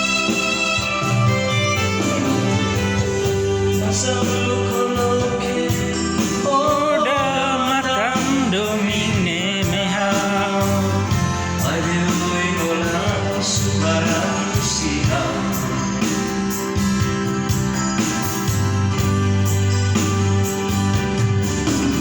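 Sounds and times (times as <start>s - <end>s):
person singing with vibrato: 0.0s - 16.8s
electronic keyboard accompaniment: 0.0s - 22.0s.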